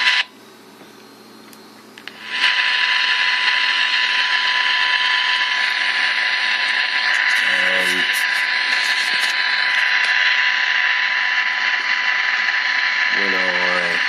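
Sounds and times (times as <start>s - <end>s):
radio interference hiss with high tone: 0.0s - 14.0s.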